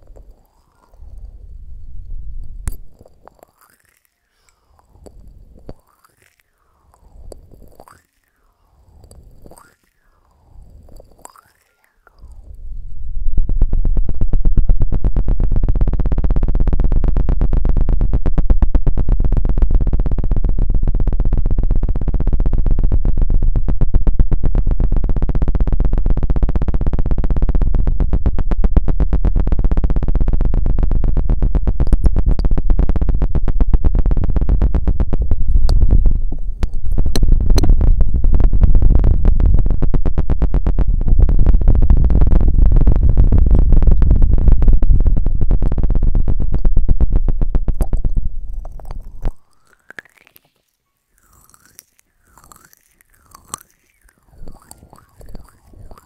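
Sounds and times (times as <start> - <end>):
heavy low rumble: 0.0 - 3.4, 12.3 - 49.5
feather rod scratching microphone: 31.8 - 50.6, 51.2 - 56.0.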